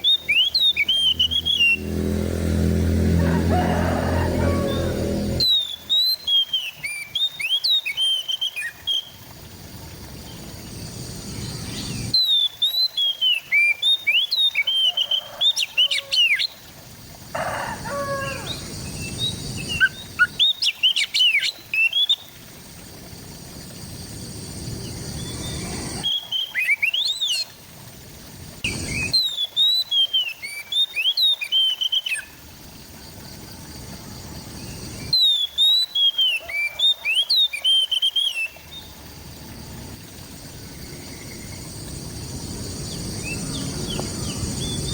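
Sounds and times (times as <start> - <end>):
bird singing chirps and whistles: 0.0 - 1.8, 5.4 - 9.2, 11.7 - 15.3, 18.9 - 22.3, 25.2 - 27.4, 28.7 - 32.3, 35.1 - 38.7.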